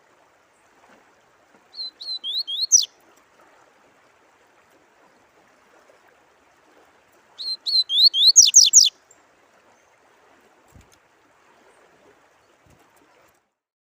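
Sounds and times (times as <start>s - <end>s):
running water: 0.0s - 13.6s
songbird whistling upward notes: 1.8s - 2.9s, 7.4s - 8.9s.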